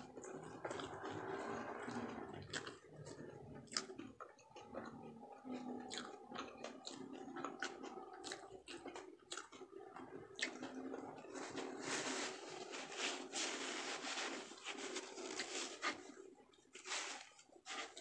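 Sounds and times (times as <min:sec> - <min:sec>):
chewing food: 0:00.0 - 0:18.0
mouth clicks and smacks: 0:01.9 - 0:11.0.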